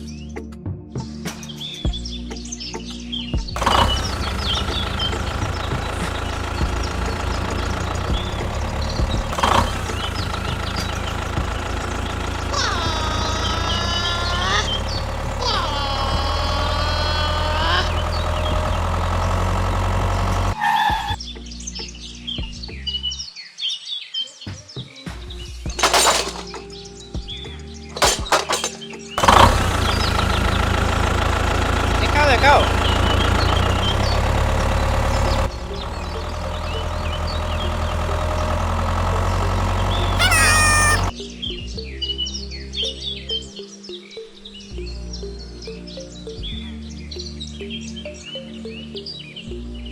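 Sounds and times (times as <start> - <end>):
tractor engine idling: 3.6 - 20.6, 25.8 - 26.7, 28.0 - 41.1
birds chirping: 40.2 - 41.1
short rising cry: 40.2 - 41.1.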